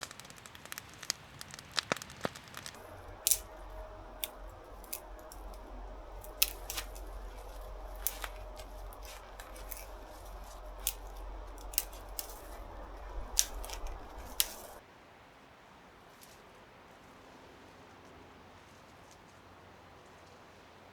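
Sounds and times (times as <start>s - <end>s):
campfire crackling: 0.0s - 14.8s
steady fire hiss: 0.0s - 14.8s.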